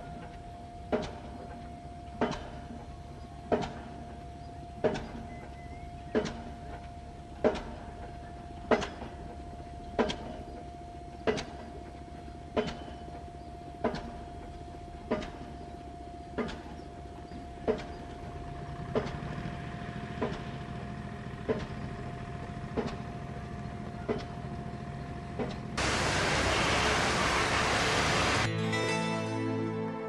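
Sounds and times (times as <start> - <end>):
machine hum with whine: 0.0 - 28.5
deep engine hum: 18.0 - 28.5.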